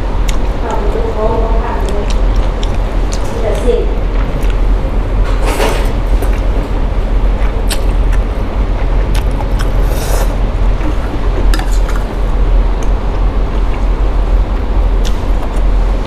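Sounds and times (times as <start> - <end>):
low rumble: 0.0 - 16.0
slurp: 9.2 - 12.0.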